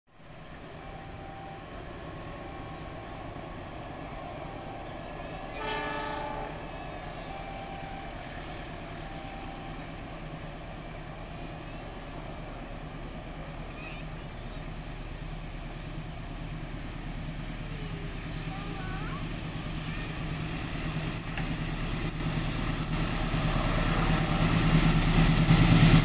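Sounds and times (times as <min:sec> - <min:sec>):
approaching train rumble: 0:00.1 - 0:26.0
distant locomotive horn blast: 0:00.6 - 0:09.8.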